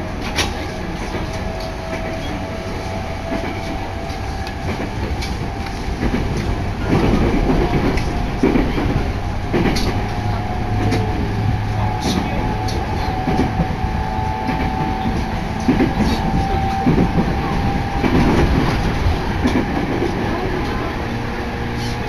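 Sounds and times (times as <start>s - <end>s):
train car running rumble: 0.0s - 22.0s.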